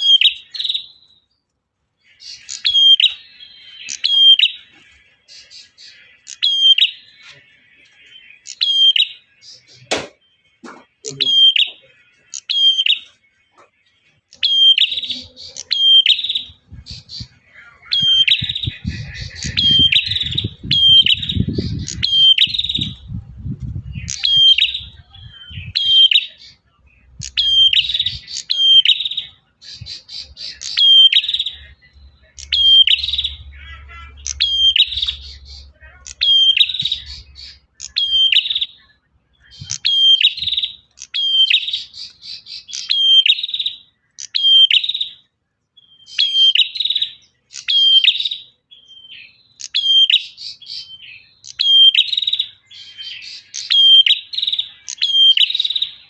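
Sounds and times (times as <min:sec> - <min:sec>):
songbird singing sharp phrases: 0:00.0 - 0:56.0
low rumble: 0:22.6 - 0:25.8.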